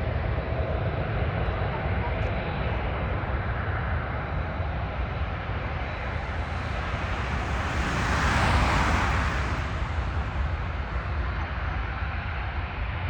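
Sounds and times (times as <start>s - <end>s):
jet engines roaring: 0.0s - 13.0s
low rumble: 4.2s - 13.0s.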